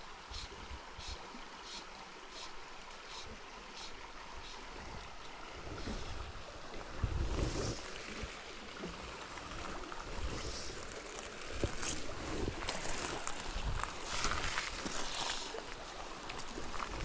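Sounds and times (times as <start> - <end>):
river water running: 0.0 - 17.0
wind rumbling on microphone: 4.7 - 8.4, 9.7 - 10.9, 11.5 - 15.4, 16.4 - 17.0.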